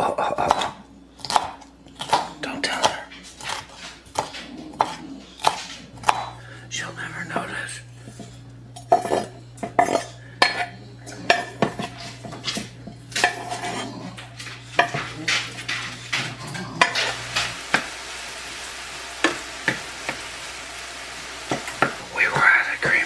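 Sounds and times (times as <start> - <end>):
food sizzling: 11.2 - 23.0.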